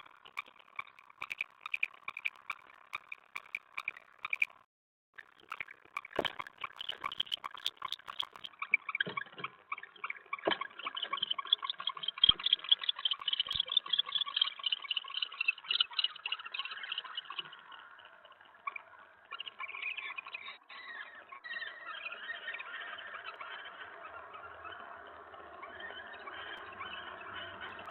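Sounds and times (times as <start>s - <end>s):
owls chittering: 0.0s - 4.6s
sharp clicks and scratches: 0.0s - 8.6s.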